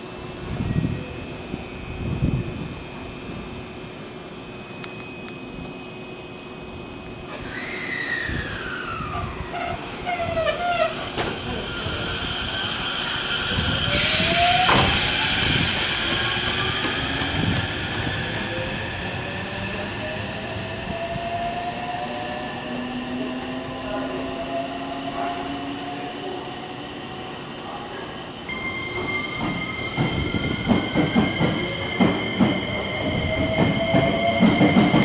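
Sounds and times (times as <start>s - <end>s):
loud air hiss: 11.4s - 16.8s.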